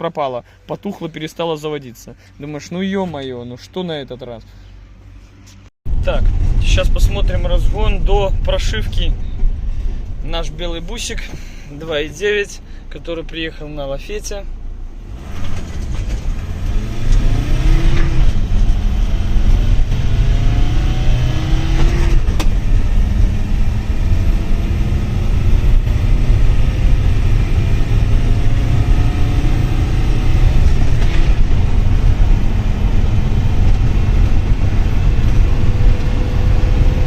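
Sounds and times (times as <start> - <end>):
van engine accelerating: 14.5 - 37.0.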